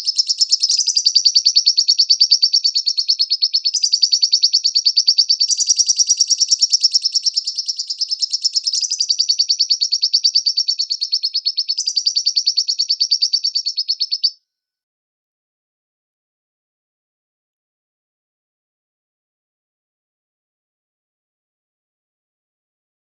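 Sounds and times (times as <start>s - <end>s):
bird chirping rapidly: 0.0s - 14.4s.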